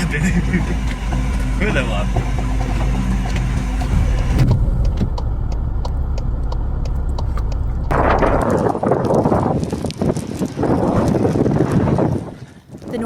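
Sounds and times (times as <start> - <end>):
regular ticking: 0.0 - 8.8
vehicle engine running: 0.0 - 9.0
low vehicle rumble: 0.0 - 11.4.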